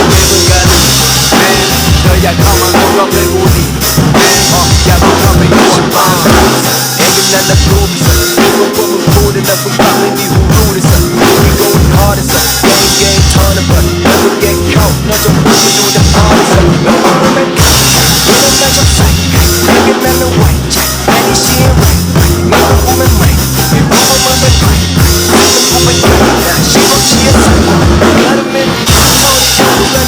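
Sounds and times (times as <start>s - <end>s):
drum kit beat: 0.0s - 30.0s
hip-hop backing track: 0.0s - 30.0s.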